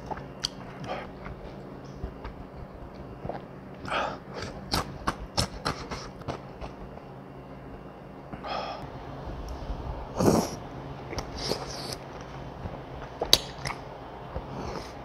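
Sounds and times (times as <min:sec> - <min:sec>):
slurping and sniffing: 0:10.2 - 0:12.1, 0:14.4 - 0:15.0.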